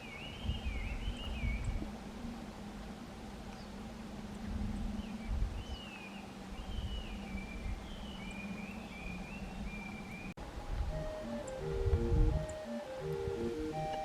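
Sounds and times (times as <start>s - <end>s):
songbird whistling: 0.0s - 1.8s, 5.0s - 14.0s
low wind rumble: 0.0s - 14.0s.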